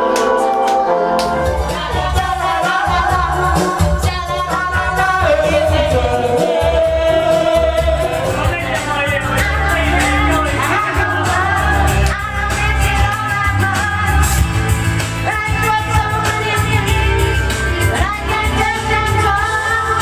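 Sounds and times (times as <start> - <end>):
pop-rock song with singer: 0.0 - 20.0
steady beat and bass: 9.2 - 15.6.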